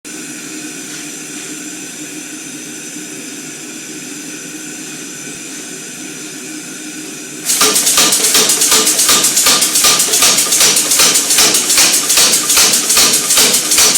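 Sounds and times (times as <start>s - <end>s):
air hammer motor humming: 7.4s - 13.9s
air hammer ram striking: 7.4s - 13.9s.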